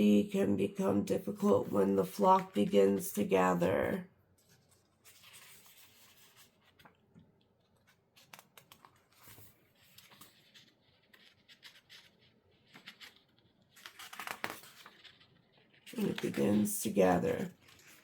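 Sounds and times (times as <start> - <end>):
soft scratching: 4.4 - 7.0, 7.6 - 18.0.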